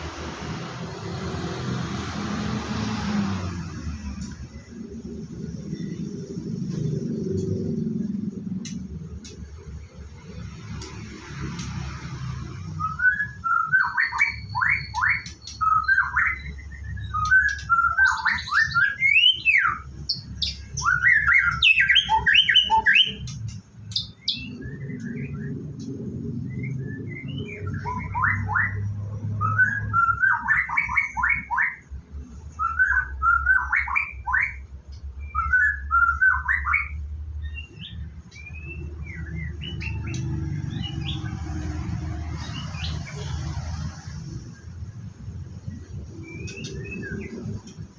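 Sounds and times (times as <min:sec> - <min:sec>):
bird singing: 0:02.8 - 0:10.8, 0:12.4 - 0:43.4, 0:45.5 - 0:47.9.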